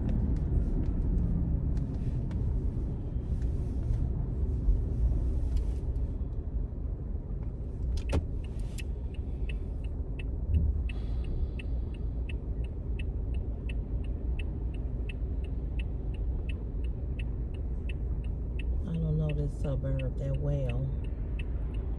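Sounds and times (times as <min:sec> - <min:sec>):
car road and engine rumble: 0:00.0 - 0:21.9
turn signal ticking: 0:07.8 - 0:21.9.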